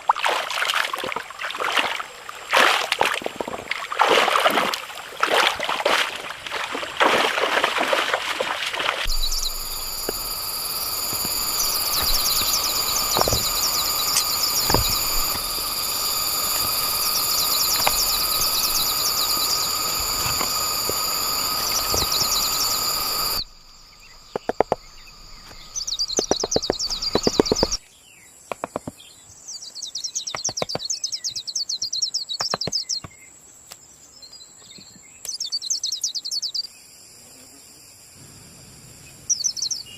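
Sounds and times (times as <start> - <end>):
insects trilling: 0.5 - 39.9
birds trilling: 7.4 - 27.8
sharp knocks and tapping: 11.1 - 15.4, 26.2 - 27.8, 28.5 - 29.0.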